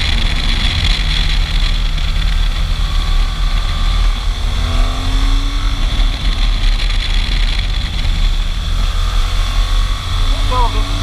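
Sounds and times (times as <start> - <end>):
motorcycle engine accelerating: 0.0 - 11.0
wind rumbling on microphone: 0.0 - 11.0.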